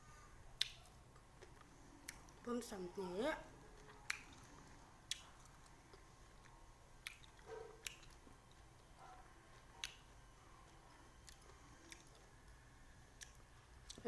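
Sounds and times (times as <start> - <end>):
person chewing: 0.6 - 2.4, 3.6 - 12.6, 13.2 - 14.0
sharp wet clicks: 0.6 - 2.4, 3.8 - 8.9, 9.5 - 10.1, 10.7 - 12.2.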